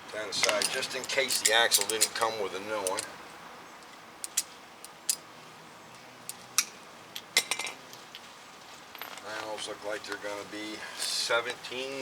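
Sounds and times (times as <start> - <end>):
metal tools clinking: 0.4 - 3.1, 8.9 - 9.6.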